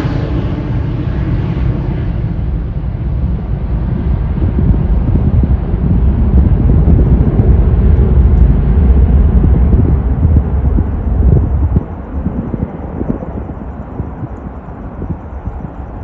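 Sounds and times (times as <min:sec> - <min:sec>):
jet engine hiss: 0:00.0 - 0:16.0
jet engines rumbling: 0:00.0 - 0:16.0.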